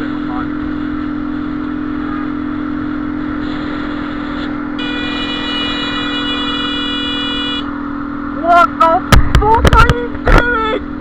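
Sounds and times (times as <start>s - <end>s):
motorcycle engine running: 0.0s - 11.0s
road and wind noise: 0.0s - 11.0s
horn blast: 3.4s - 7.7s.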